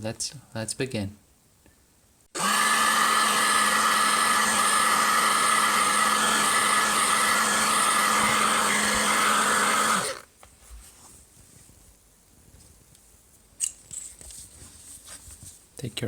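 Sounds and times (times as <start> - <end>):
hot-air blower whining: 2.4 - 10.3.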